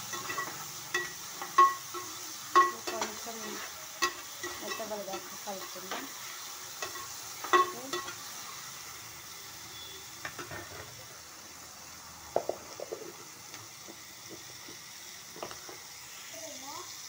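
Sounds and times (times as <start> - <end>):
spoon scraping and knocking pan: 0.0 - 8.6, 9.8 - 11.0, 12.3 - 15.9
vegetables sizzling in hot oil: 0.0 - 17.0.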